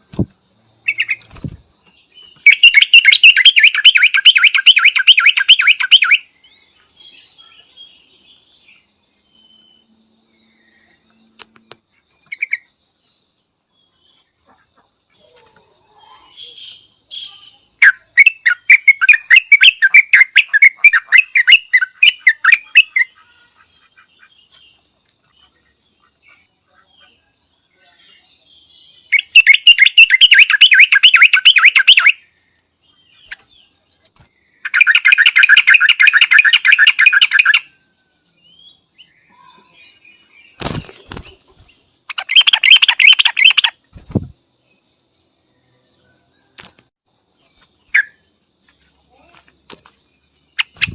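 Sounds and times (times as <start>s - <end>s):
bird chattering calls: 2.4s - 6.2s, 16.3s - 24.3s, 29.1s - 32.2s, 34.6s - 37.6s, 40.6s - 44.3s, 50.6s - 50.9s.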